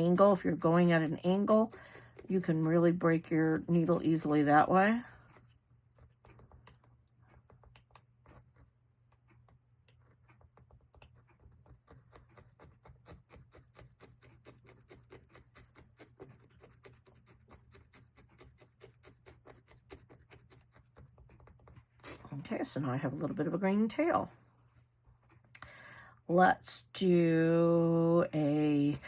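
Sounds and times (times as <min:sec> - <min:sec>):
felting needle poking wool: 0:00.0 - 0:22.4.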